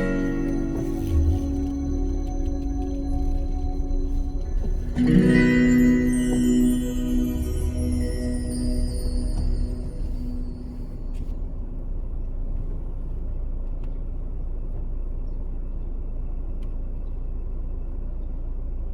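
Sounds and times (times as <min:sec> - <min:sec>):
music: 0:00.0 - 0:11.4
low outdoor rumble: 0:00.0 - 0:18.9.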